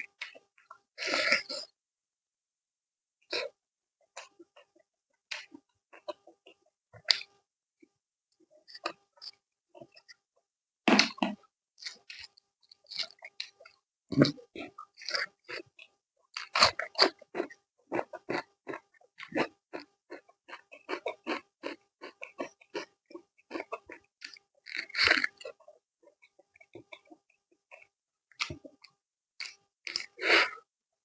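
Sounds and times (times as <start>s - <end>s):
person chewing and mouth-smacking: 5.3s - 7.3s, 10.9s - 30.6s.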